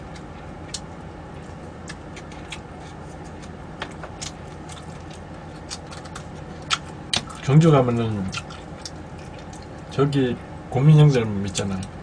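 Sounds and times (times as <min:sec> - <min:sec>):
mouth clicks and smacks: 0:08.3 - 0:09.8.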